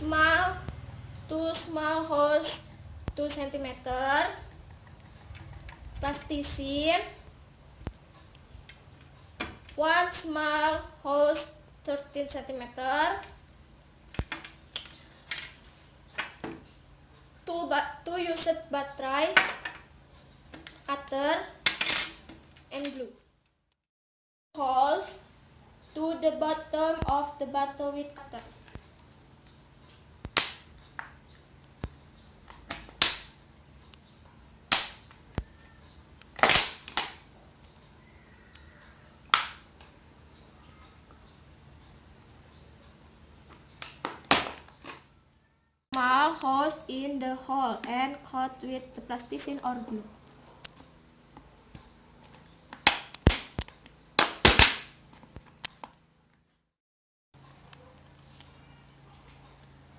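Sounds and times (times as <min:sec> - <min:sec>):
plastic bottle cracking: 0:36.3 - 0:37.2, 0:43.8 - 0:45.0, 0:52.8 - 0:55.0.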